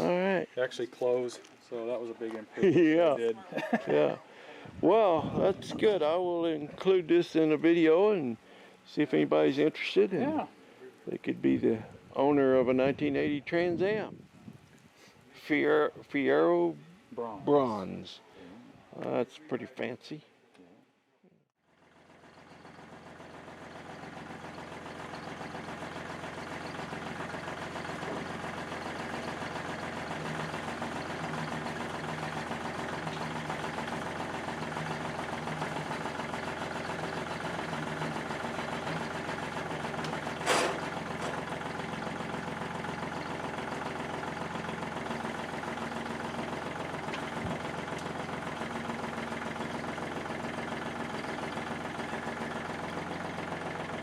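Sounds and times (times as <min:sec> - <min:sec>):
car engine idling: 0:21.7 - 0:54.0.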